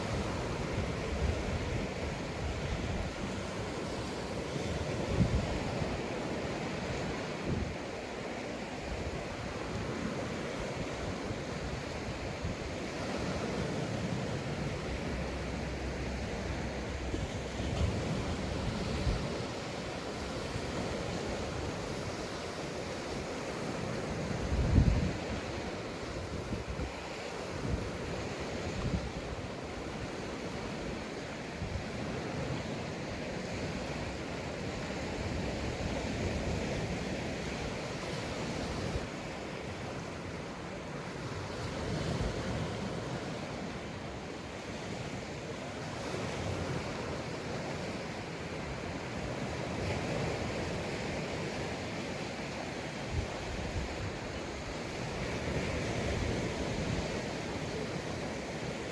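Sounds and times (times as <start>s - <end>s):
wind buffeting microphone: 0.0s - 8.0s, 8.8s - 30.8s
surf breaking on beach: 0.0s - 58.9s.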